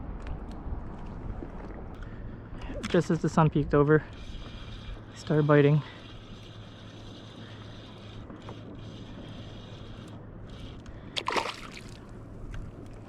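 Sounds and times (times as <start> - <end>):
water lapping against hull: 0.1 - 13.0
water splash: 11.2 - 12.0.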